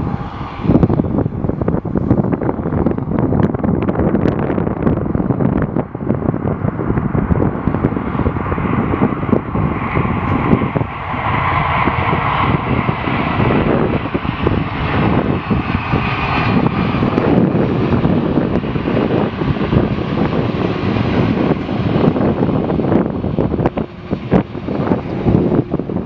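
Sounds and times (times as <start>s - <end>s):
jet engines roaring: 0.0s - 26.0s
wind buffeting microphone: 0.0s - 26.0s.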